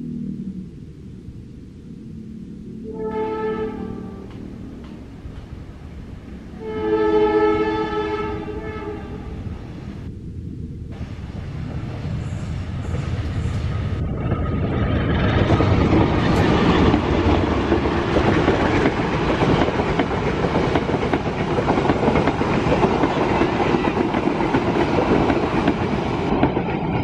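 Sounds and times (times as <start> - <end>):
diesel locomotive engine drone: 0.0 - 27.0
train coaches rumbling: 10.9 - 27.0
train wheel clicks: 15.0 - 27.0.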